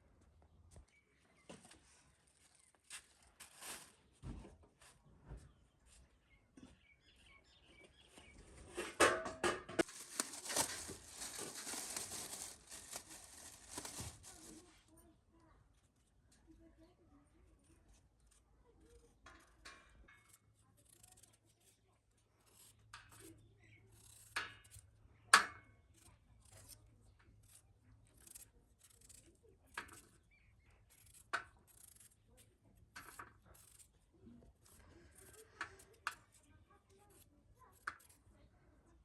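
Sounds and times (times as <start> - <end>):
sharp cutting clicks and snips: 19.8 - 21.8, 22.4 - 25.0, 25.9 - 34.0.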